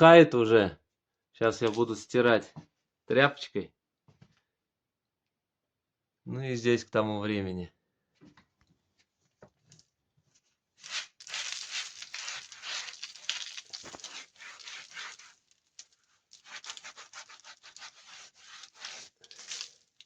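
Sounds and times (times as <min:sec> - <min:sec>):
rag scrubbing brickwork: 0:10.8 - 0:15.6, 0:16.3 - 0:20.0.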